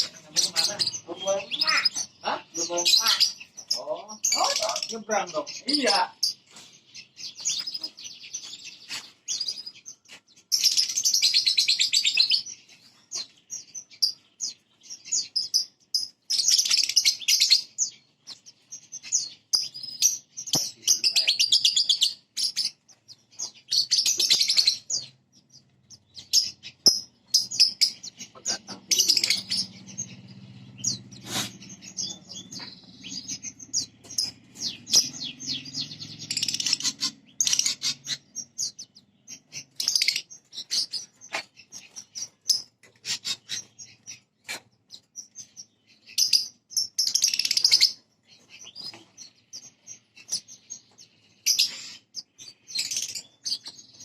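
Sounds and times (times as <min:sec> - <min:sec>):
bird singing chattering trills: 0:00.0 - 0:54.0.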